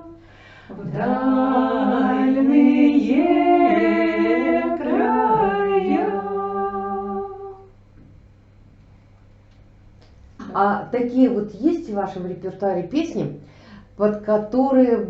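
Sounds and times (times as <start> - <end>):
women singing in harmony: 0.0 - 7.7
low steady hum: 0.0 - 15.0.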